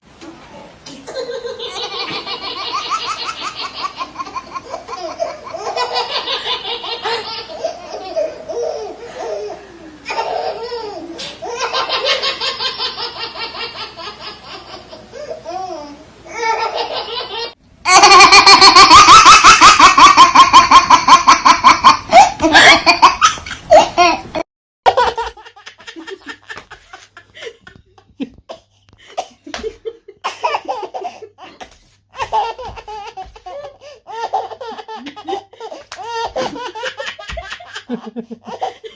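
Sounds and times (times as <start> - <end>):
young child laughing: 16.5 - 28.6, 29.2 - 38.9.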